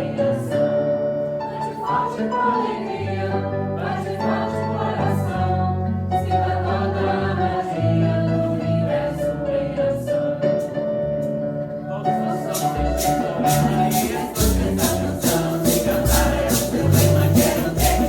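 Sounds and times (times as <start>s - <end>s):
group of voices singing hymn: 1.4s - 10.9s, 11.8s - 18.0s
shaken rattle strokes: 12.3s - 18.0s.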